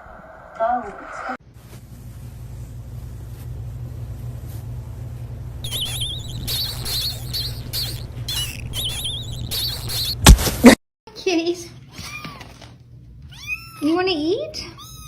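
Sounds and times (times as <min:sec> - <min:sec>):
small animal chirping: 0:05.6 - 0:10.2.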